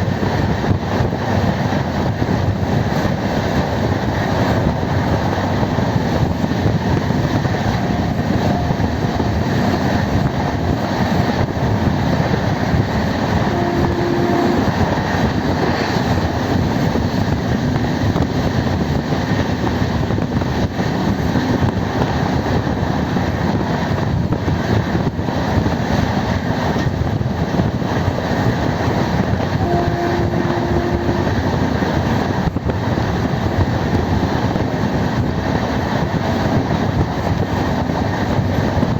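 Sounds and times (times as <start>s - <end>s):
train wheels rumbling on track: 0.0s - 38.9s
brief steady tone: 7.6s - 9.4s, 13.4s - 14.8s, 29.6s - 31.4s.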